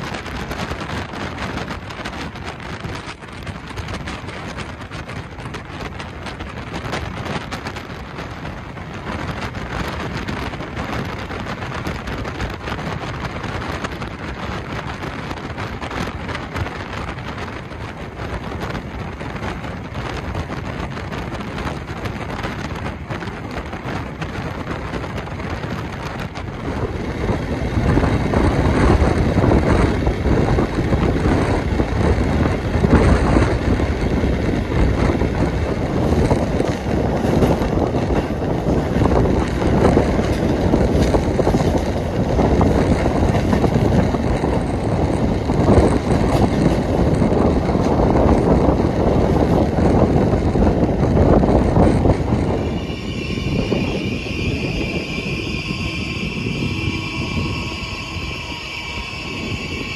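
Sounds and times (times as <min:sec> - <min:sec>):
wind and wheel-on-rail noise: 0:00.0 - 0:59.9
train brakes squealing: 0:52.0 - 0:59.9.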